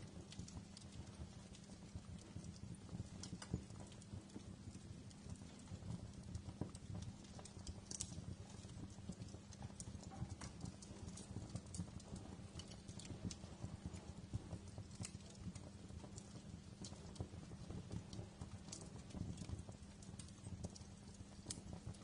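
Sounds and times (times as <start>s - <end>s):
low rumble of flames: 0.0s - 22.0s
wood fire crackling: 0.0s - 22.0s.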